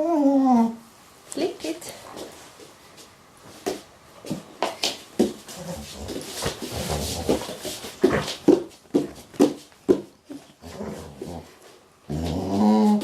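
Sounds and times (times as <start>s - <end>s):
dog grumbling and whining: 0.0s - 0.9s, 10.4s - 13.0s.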